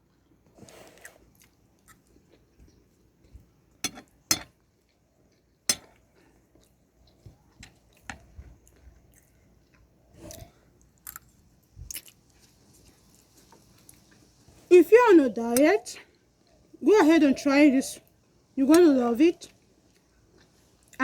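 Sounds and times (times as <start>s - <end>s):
person chewing food: 0.0s - 14.7s, 19.5s - 21.0s.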